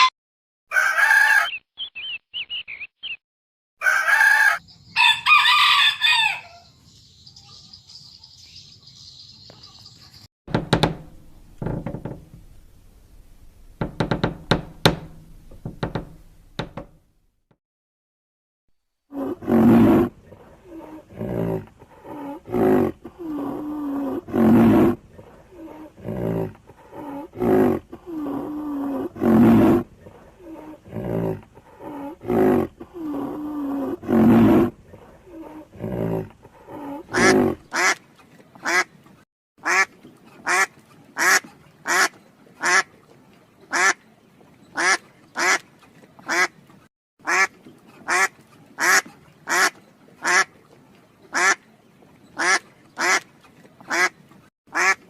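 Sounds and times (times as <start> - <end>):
drawn-out animal calls: 19.2 - 38.0.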